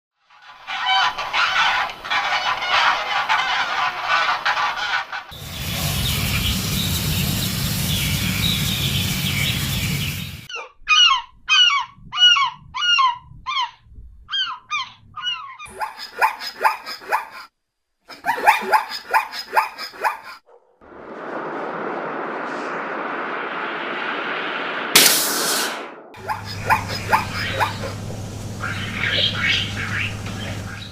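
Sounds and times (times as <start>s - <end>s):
fowl honking calls: 0.5s - 7.0s, 26.2s - 30.9s
steady rushing noise: 5.3s - 10.5s, 20.8s - 30.9s.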